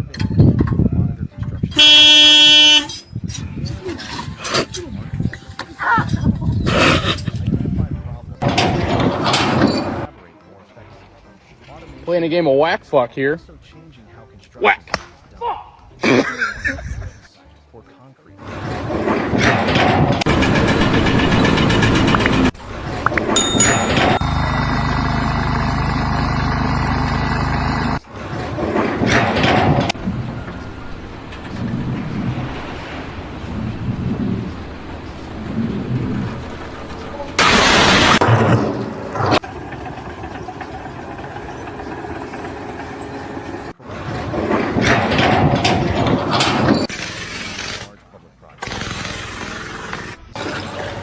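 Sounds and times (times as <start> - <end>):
engine running: 24.2 - 28.0.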